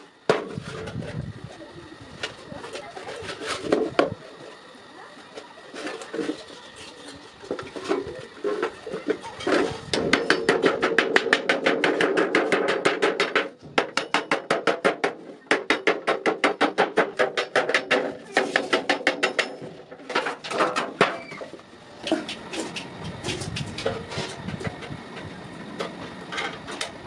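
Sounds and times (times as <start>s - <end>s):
hammer striking iron on anvil: 10.0s - 19.7s.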